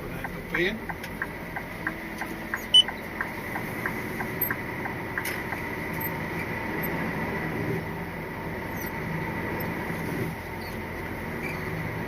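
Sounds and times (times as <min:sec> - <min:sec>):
lorry engine and road noise: 0:00.0 - 0:12.0
light ticks: 0:00.2 - 0:06.2.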